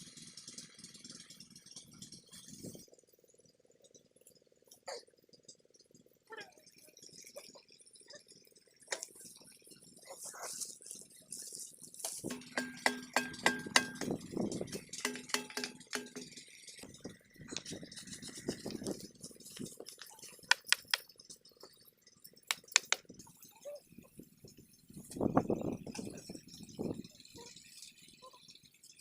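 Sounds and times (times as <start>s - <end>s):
metallic clinks and knocks: 12.0s - 23.4s
sharp clicks: 19.9s - 21.1s, 22.4s - 23.1s.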